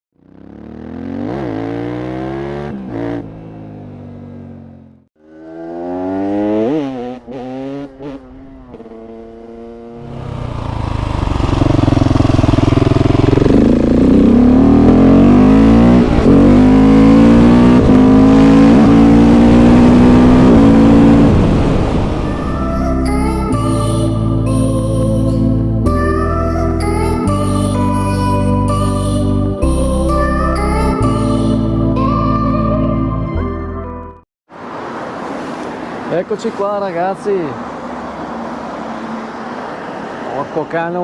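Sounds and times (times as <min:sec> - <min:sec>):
motorcycle engine revving: 0:00.1 - 0:23.8
wind rush on microphone: 0:17.6 - 0:22.7.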